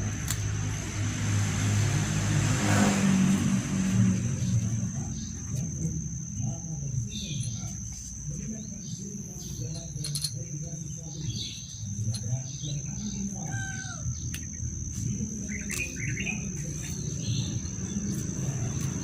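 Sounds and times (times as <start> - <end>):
high-pitched insect drone: 0.0 - 19.0
small birds chirping: 4.2 - 19.0.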